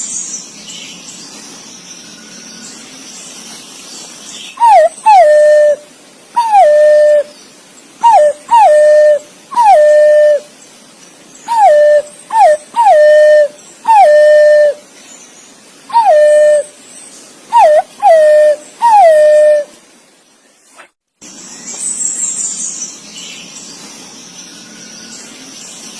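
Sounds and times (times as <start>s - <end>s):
pigeon whistled calls: 4.6s - 5.8s, 6.4s - 7.3s, 8.0s - 10.5s, 11.5s - 14.8s, 15.9s - 16.7s, 17.5s - 19.7s.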